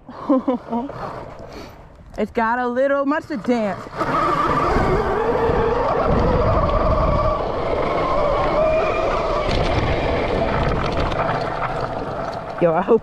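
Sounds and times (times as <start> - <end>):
wind buffeting microphone: 0.9 - 13.0
electric motorbike motor whining: 3.2 - 12.6.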